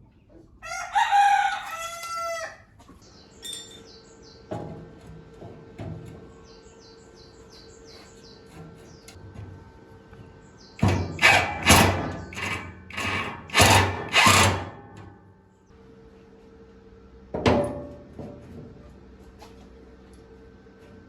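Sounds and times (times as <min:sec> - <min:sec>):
hand tool scraping: 0:10.8 - 0:15.1.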